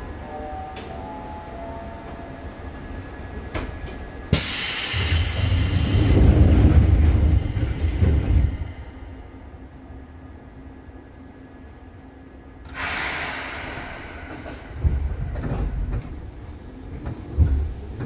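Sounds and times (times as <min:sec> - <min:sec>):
loud rush of hissing: 0:12.7 - 0:14.8
heavy low rumble: 0:12.8 - 0:18.0.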